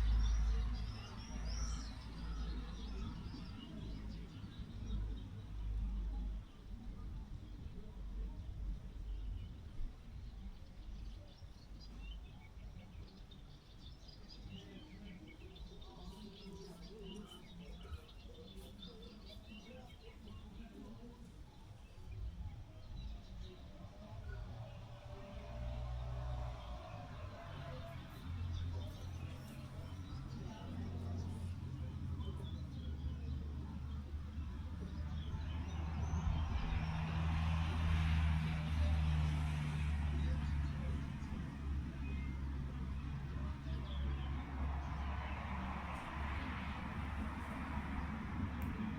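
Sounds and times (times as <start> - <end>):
low wind rumble: 0.0 - 48.9
small birds chirping: 0.0 - 48.9
vehicle engine humming: 23.4 - 48.9.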